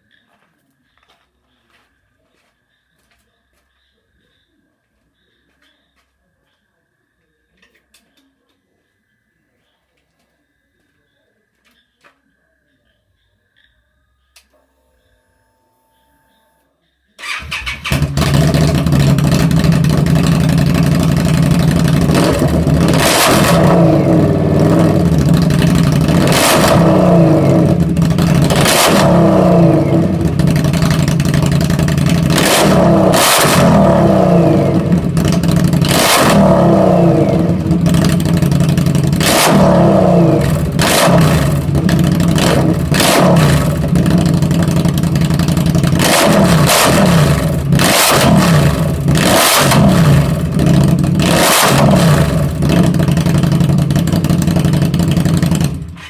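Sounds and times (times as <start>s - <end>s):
motorcycle engine revving: 17.2s - 56.0s
exhaust backfiring pops: 17.9s - 56.0s.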